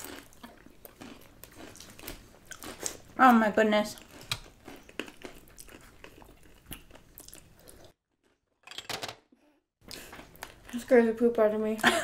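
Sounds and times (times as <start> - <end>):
crunchy chips being chewed: 0.0 - 3.2, 3.9 - 8.4.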